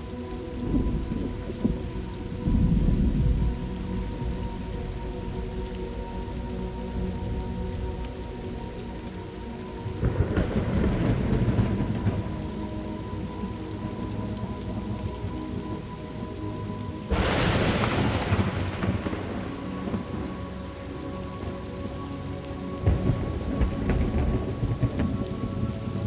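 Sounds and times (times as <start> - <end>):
steady rain: 0.0 - 26.0
low rolling thunder: 0.6 - 6.2, 10.0 - 14.0, 17.1 - 20.6, 22.8 - 26.0
sharp thunderclap: 17.1 - 20.2.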